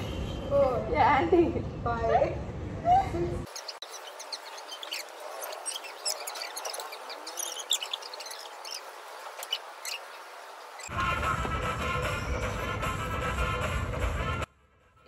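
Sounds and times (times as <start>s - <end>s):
small birds chirping: 3.4s - 10.9s.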